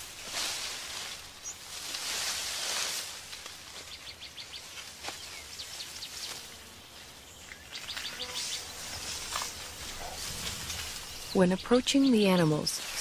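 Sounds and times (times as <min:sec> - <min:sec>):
faint forest hiss: 0:00.0 - 0:13.0
birds chirping: 0:01.2 - 0:01.8, 0:03.6 - 0:13.0.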